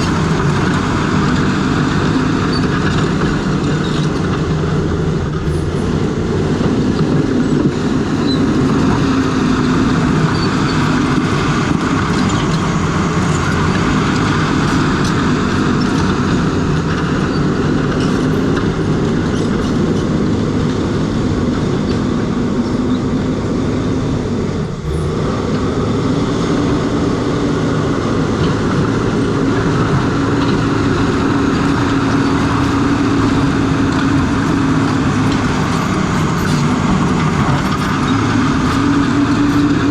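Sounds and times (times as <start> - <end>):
steel tracks clattering: 0.0 - 23.2, 24.6 - 39.9
bulldozer diesel engine: 0.0 - 39.9.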